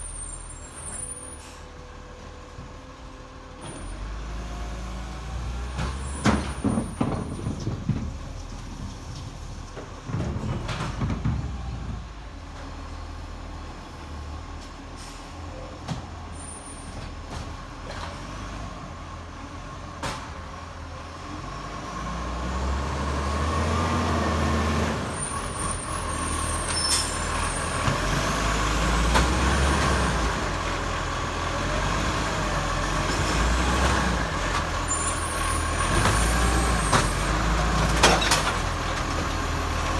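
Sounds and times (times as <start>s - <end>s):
garbage truck diesel engine running: 0.0s - 39.9s.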